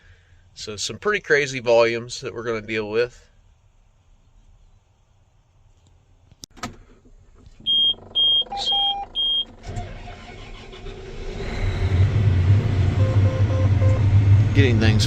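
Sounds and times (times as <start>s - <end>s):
engine cranking and starting: 6.6s - 14.0s
short high warning beeps: 7.7s - 9.4s, 13.0s - 14.1s.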